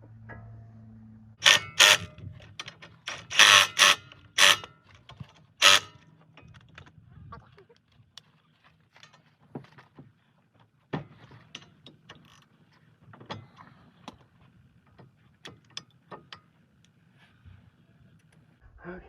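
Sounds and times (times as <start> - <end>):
metallic clicks and knocks of tools: 1.4 - 7.0.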